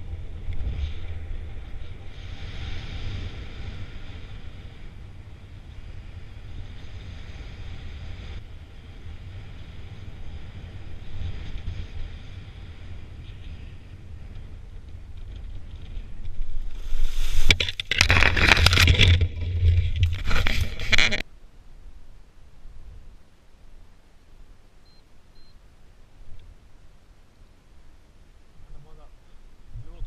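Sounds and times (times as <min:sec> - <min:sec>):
wind rushing over microphone: 0:00.0 - 0:21.2
wind buffeting and rustling: 0:00.0 - 0:24.6.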